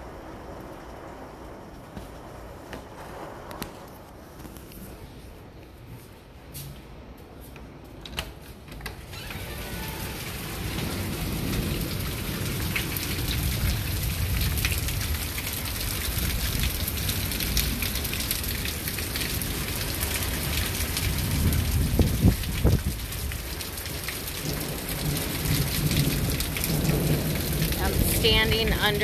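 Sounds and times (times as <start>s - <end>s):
heavy rain pouring: 0.0s - 5.4s, 9.0s - 29.0s
low rumble of thunder: 9.9s - 29.0s.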